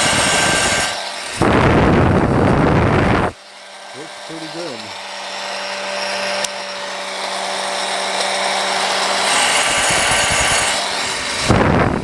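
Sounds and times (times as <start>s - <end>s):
wind buffeting microphone: 0.0s - 3.4s, 9.7s - 12.0s
hair dryer motor hum: 0.0s - 12.0s
rushing air from fan: 0.0s - 12.0s
hair dryer click: 6.4s - 6.6s, 7.9s - 8.6s.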